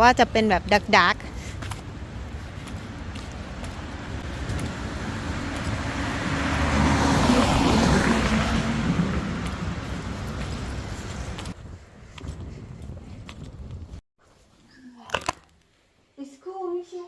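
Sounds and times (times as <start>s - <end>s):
car passing on wet road: 2.9s - 11.6s.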